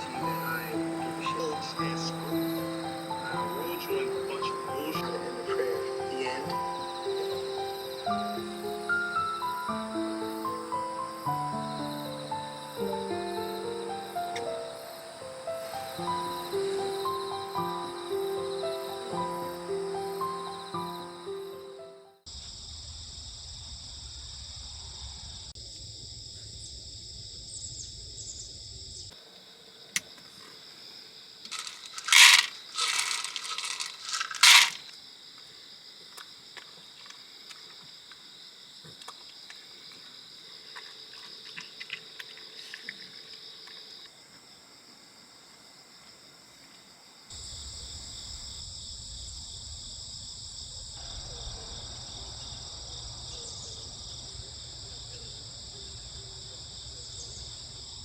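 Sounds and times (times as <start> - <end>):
crickets and insects chirring: 0.0 - 58.0
loud sharp clicks and clatter: 31.5 - 34.8.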